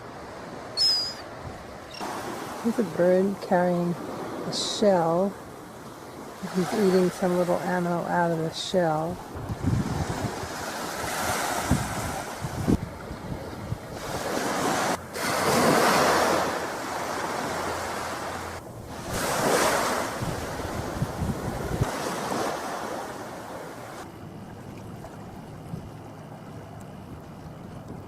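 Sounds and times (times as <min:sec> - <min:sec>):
waves washing ashore: 0:00.0 - 0:28.0
wind rumbling on microphone: 0:09.0 - 0:17.7, 0:18.5 - 0:28.0.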